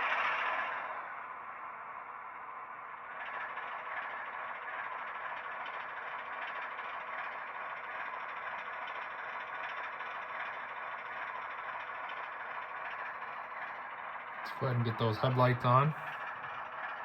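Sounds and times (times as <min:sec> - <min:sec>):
diesel engine idling through small speaker: 0:00.0 - 0:17.0.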